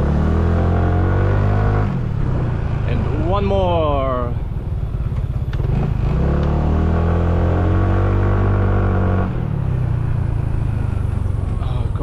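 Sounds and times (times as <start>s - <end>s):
vehicle engine pulling away: 0.0s - 12.0s.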